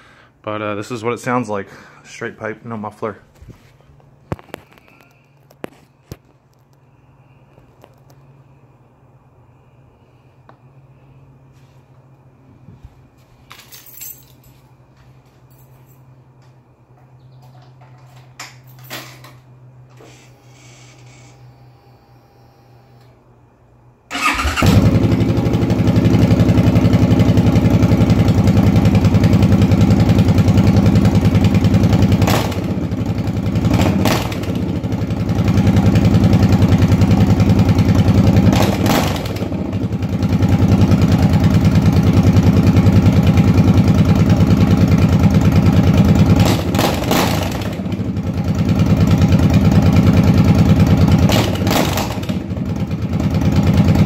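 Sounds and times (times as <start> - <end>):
motorcycle engine idling loudly: 24.2 - 54.0.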